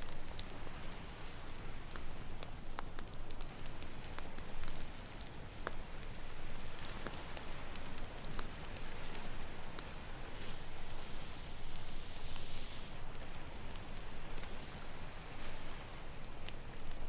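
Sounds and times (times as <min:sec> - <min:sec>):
campfire crackling: 0:00.0 - 0:17.0
ocean waves: 0:03.5 - 0:17.0.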